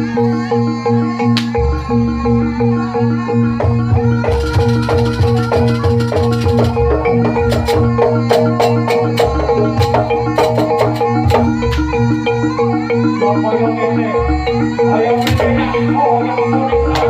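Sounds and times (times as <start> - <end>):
gamelan music: 0.0 - 17.0
drums: 3.5 - 12.1, 15.2 - 17.0.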